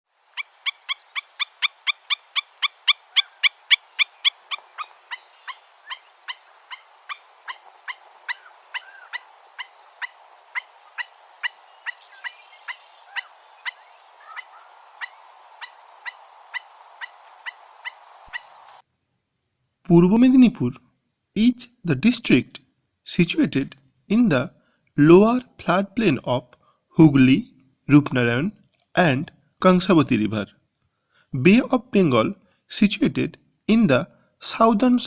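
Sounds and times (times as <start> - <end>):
bird calling in sharp notes: 0.4 - 18.8.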